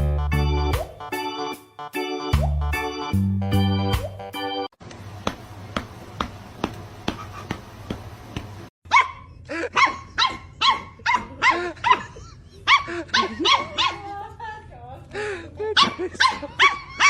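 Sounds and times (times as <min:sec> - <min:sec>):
organ music: 0:00.0 - 0:04.7
dog barking: 0:08.9 - 0:14.1, 0:15.8 - 0:17.0.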